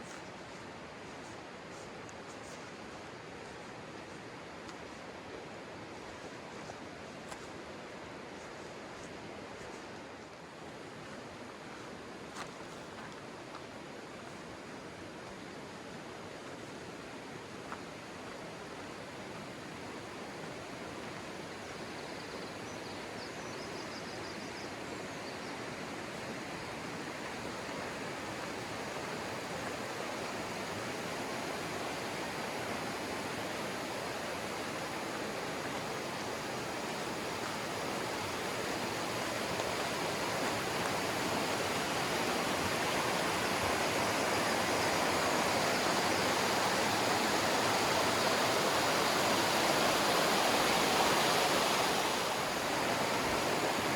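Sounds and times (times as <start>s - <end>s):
river water rushing over rocks: 24.8s - 53.9s.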